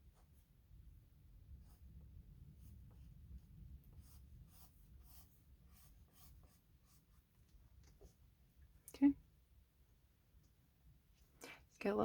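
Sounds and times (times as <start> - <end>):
low steady hum: 0.0 - 12.0
oil pastel scratching on paper: 1.6 - 7.3.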